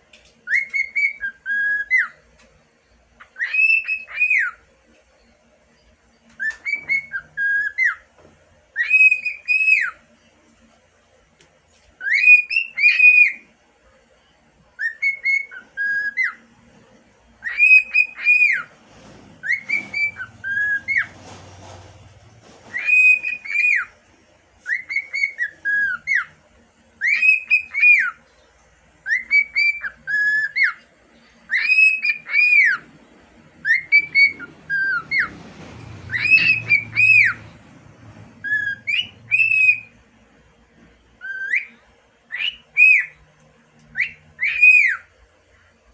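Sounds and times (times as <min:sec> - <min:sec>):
cockatiel whistling: 0:00.4 - 0:02.2, 0:03.2 - 0:04.7, 0:06.3 - 0:08.1, 0:08.7 - 0:10.0, 0:12.0 - 0:13.5, 0:14.8 - 0:16.5, 0:17.4 - 0:18.7, 0:19.4 - 0:21.2, 0:22.6 - 0:24.0, 0:24.6 - 0:26.4, 0:27.0 - 0:28.3, 0:29.0 - 0:30.8, 0:31.4 - 0:32.9, 0:33.6 - 0:35.4, 0:36.0 - 0:40.1, 0:41.2 - 0:43.2, 0:43.9 - 0:45.1.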